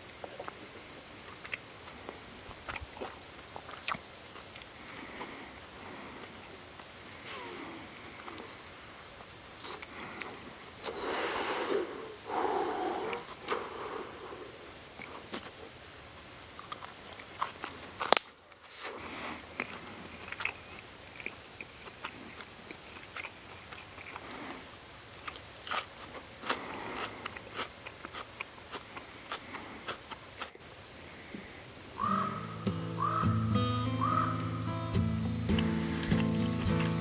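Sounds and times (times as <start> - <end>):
campfire crackling and popping: 13.1 - 18.5, 32.7 - 37.0.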